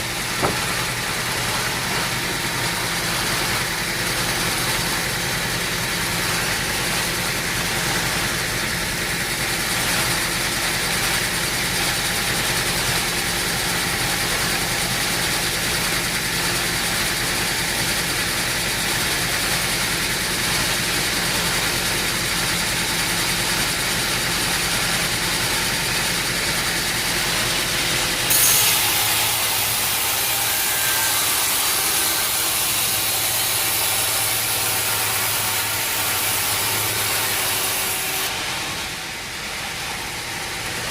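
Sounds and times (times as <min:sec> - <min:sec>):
engine running: 0:00.0 - 0:22.1.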